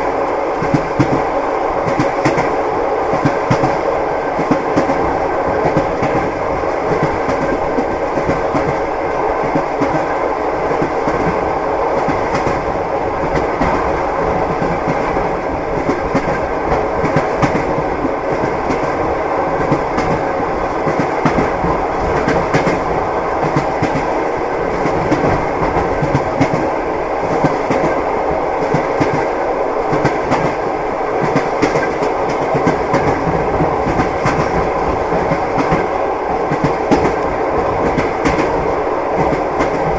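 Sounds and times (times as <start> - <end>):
train carriage rumbling: 0.0 - 39.9
train wheels clattering over joints: 29.9 - 39.9.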